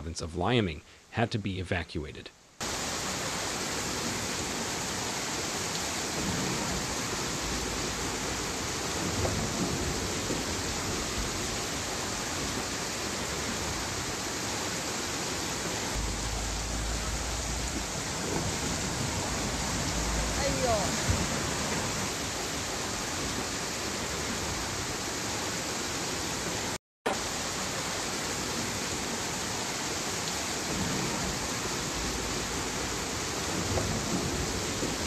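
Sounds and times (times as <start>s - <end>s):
heavy rain and floodwater hiss: 0.0s - 35.0s
low rumble: 15.9s - 21.7s.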